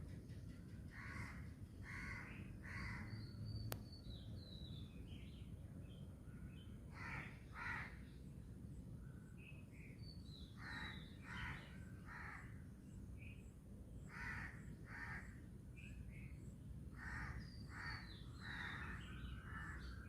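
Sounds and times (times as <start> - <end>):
crow-like cawing calls: 0.9 - 3.2, 6.9 - 8.0, 10.6 - 12.6, 14.1 - 15.4, 17.0 - 20.0
small birds chirping: 1.5 - 8.3.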